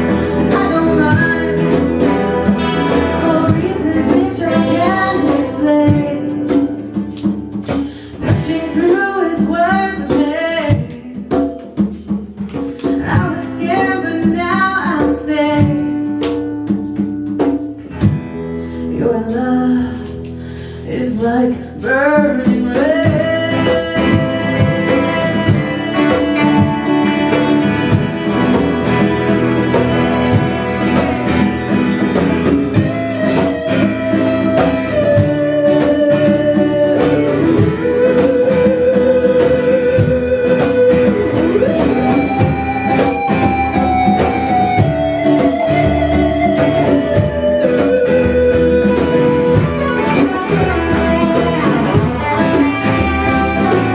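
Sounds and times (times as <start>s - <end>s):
guitar: 0.0s - 53.9s
light percussion beat: 0.0s - 53.9s
live band playing: 0.0s - 53.9s
sliding melody line: 22.9s - 53.9s.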